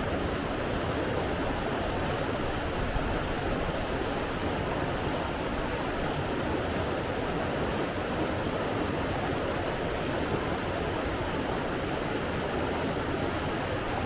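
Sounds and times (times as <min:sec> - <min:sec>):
rushing water: 0:00.0 - 0:14.0.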